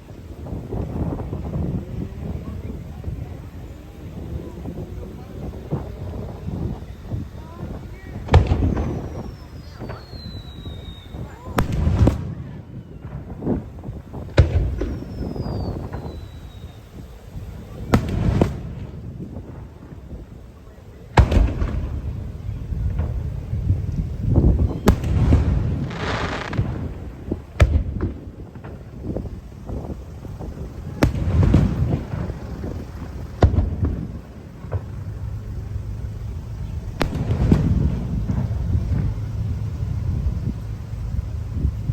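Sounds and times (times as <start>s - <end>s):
fireworks bangs: 0.0s - 41.9s
low rolling rumble: 0.0s - 41.9s
crackling pops: 5.4s - 20.4s, 21.2s - 41.9s
faint falling whistle: 8.4s - 13.3s, 14.7s - 17.2s, 24.6s - 26.6s.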